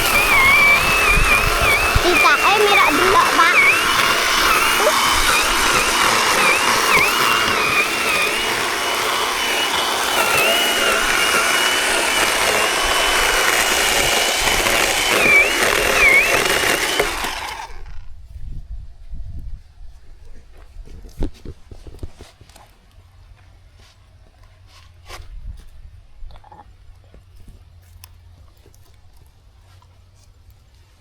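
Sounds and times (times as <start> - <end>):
electric chainsaw cutting wood: 0.0 - 18.1.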